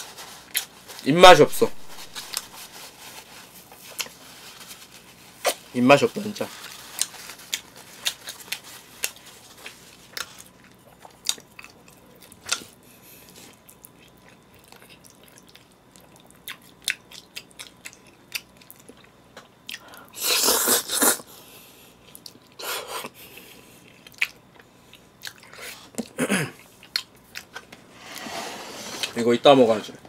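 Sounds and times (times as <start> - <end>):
wet chewing clicks: 13.5 - 19.8, 23.9 - 26.2
person slurping spaghetti: 20.2 - 21.3.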